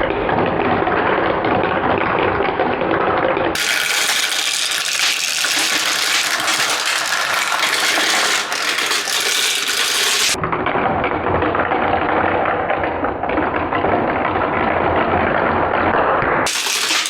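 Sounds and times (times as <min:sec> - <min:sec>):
balls rattling through plastic track: 0:03.6 - 0:10.4, 0:16.4 - 0:17.0.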